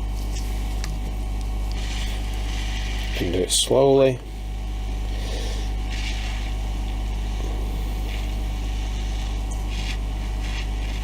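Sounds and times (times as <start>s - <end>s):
hot air gun blowing: 1.7s - 3.4s, 4.4s - 11.0s.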